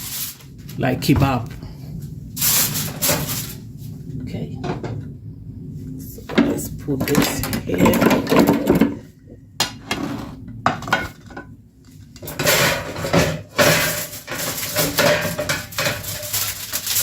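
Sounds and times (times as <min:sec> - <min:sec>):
metal pans and utensils clattering: 0:02.4 - 0:03.6, 0:06.3 - 0:11.5, 0:12.2 - 0:17.0
kitchenware clicks and knocks: 0:06.3 - 0:09.0, 0:09.6 - 0:11.4, 0:12.2 - 0:16.6.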